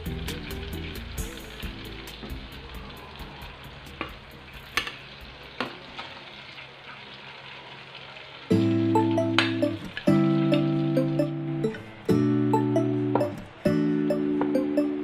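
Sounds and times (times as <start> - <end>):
background music: 0.0 - 2.7, 8.5 - 15.0
meat deep-frying in oil: 0.0 - 11.6.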